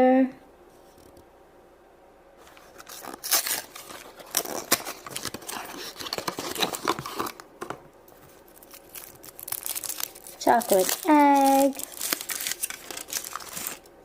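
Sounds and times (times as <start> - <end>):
wrapper crinkling and tearing: 2.4 - 7.4, 8.2 - 13.9.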